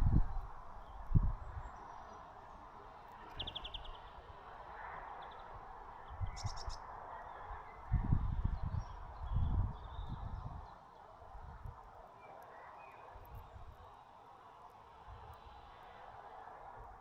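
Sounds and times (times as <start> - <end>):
small birds chirping: 0.0 - 4.3, 5.1 - 13.8.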